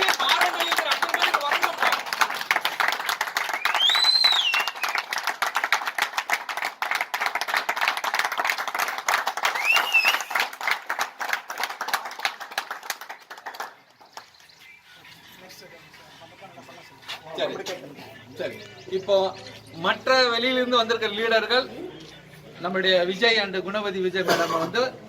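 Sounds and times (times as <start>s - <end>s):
crowd applauding: 0.0s - 14.4s.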